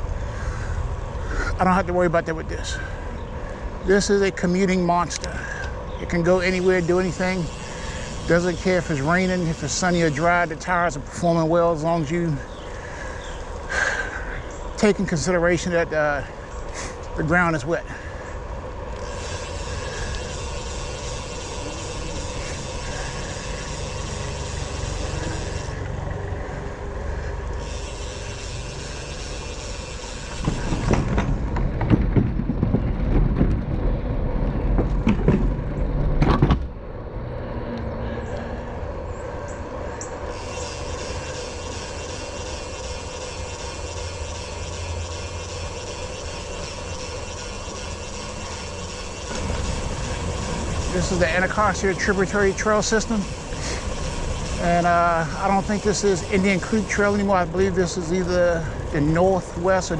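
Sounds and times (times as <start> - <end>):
bicycle tyres rolling on wet trail: 0.2 - 36.0, 40.1 - 59.9
heavy rumbling rattle with knocks: 28.8 - 36.8, 43.6 - 59.9.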